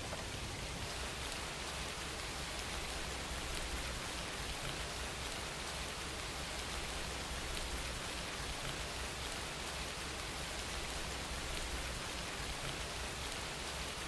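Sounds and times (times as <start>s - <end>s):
rain patter: 0.0s - 14.0s.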